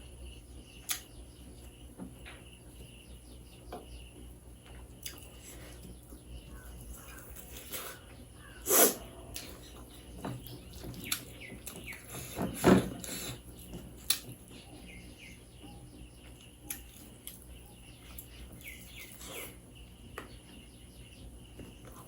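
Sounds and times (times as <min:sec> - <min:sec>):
faint bird chirps: 0:00.0 - 0:22.0
chewing and clicks: 0:00.8 - 0:01.1, 0:04.6 - 0:06.2, 0:10.7 - 0:12.1, 0:13.6 - 0:14.4, 0:16.2 - 0:19.5.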